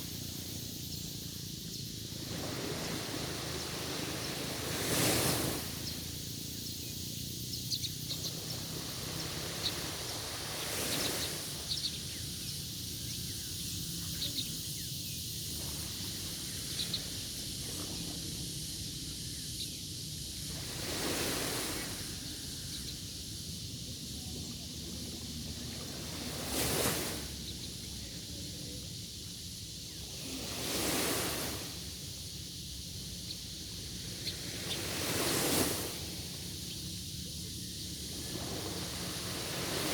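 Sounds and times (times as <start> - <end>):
sea waves washing onto shore: 2.0 - 6.7, 8.1 - 12.8, 20.3 - 22.9, 23.9 - 28.2, 29.8 - 36.7, 37.4 - 39.9.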